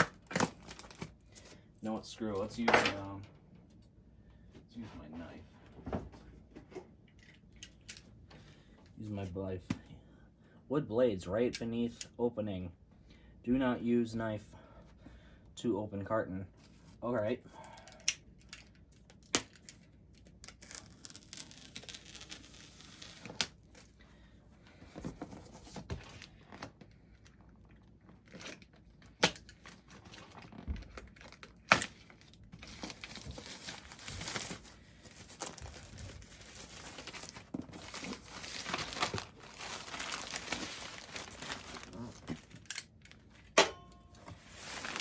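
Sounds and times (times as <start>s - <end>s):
plastic wrap tearing and crinkling: 0.0s - 1.1s, 20.3s - 23.9s, 29.6s - 43.2s, 44.4s - 45.0s.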